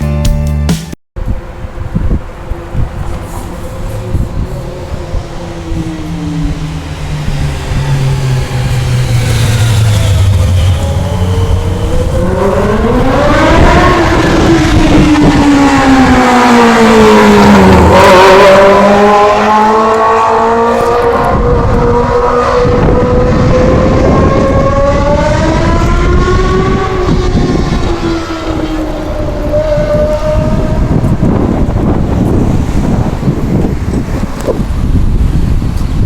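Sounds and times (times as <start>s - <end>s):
vehicle engine revving past: 2.5s - 34.0s.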